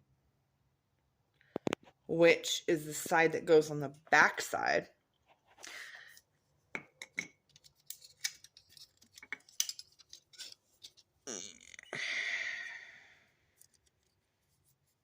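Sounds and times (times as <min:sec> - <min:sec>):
small metal parts clinking: 0:07.5 - 0:11.0.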